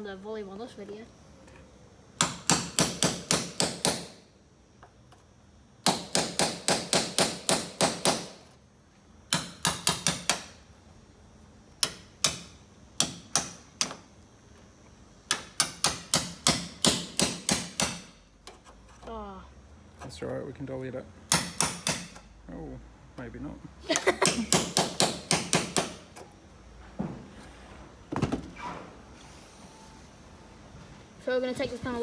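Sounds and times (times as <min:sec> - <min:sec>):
hammer striking metal chisel: 0:02.2 - 0:04.2, 0:05.8 - 0:08.3, 0:09.3 - 0:10.5, 0:11.8 - 0:14.0, 0:15.3 - 0:18.1, 0:21.3 - 0:22.2, 0:24.2 - 0:26.0.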